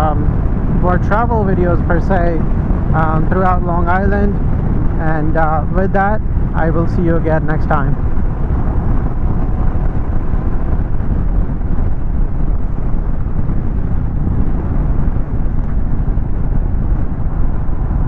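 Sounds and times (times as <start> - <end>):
wind noise: 0.0 - 18.0
motorcycle engine running: 7.4 - 18.0.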